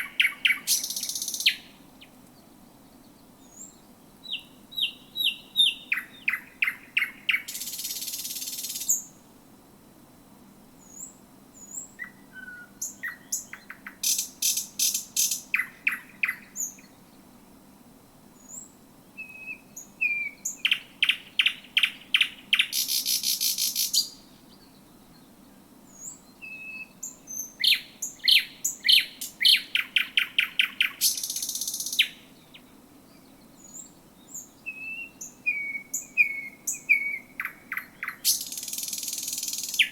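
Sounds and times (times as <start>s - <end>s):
nightingale singing: 0.0s - 9.2s, 10.8s - 17.2s, 18.4s - 39.9s.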